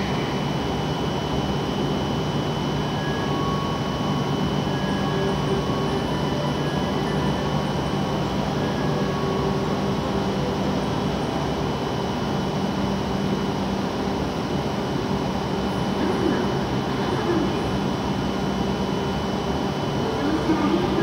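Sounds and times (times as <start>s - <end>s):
stationary train whirring hum: 0.0s - 21.0s.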